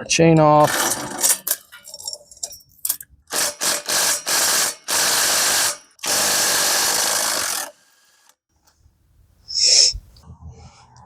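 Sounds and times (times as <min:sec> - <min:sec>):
power tool bursts: 0:00.6 - 0:01.6, 0:03.3 - 0:08.3.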